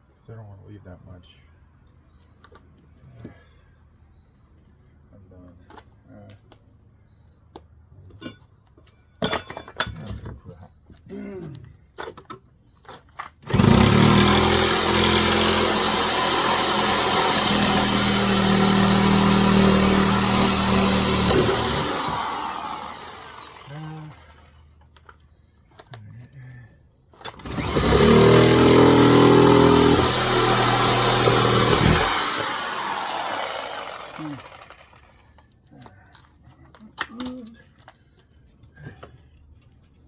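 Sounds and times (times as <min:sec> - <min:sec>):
power tool motor whining: 0:13.5 - 0:24.6, 0:27.3 - 0:35.2.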